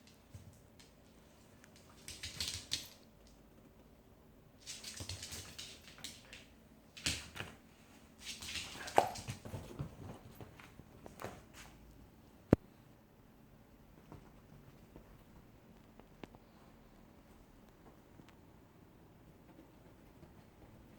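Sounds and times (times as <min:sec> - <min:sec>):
dog claws clicking on hard floor: 0:00.0 - 0:03.4, 0:04.6 - 0:07.6, 0:08.2 - 0:11.4.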